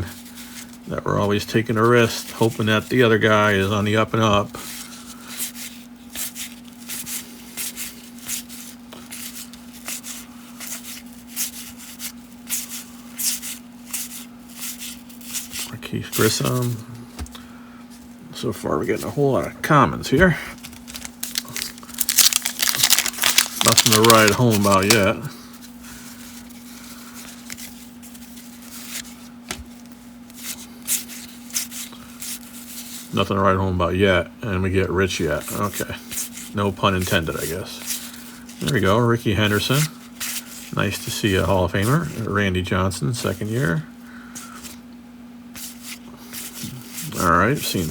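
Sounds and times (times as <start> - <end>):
steady low hum: 0.0 - 47.9
cards being flipped by hand: 20.6 - 25.2.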